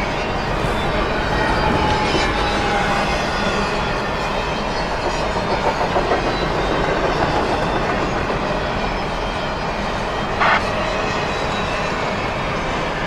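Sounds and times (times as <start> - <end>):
train wheels rumbling on rails: 0.0 - 13.0
rail clicks: 0.1 - 10.6.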